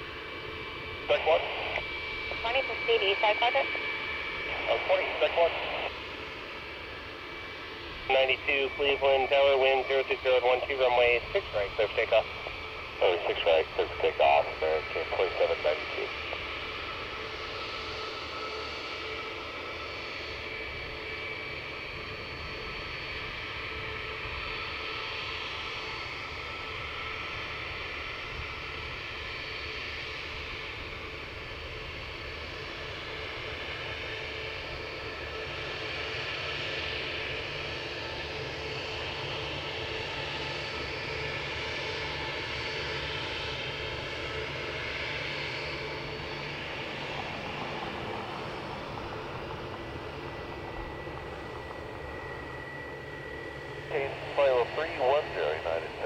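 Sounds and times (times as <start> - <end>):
jet engines roaring: 0.0 - 56.0
thin jet whine: 0.9 - 17.1.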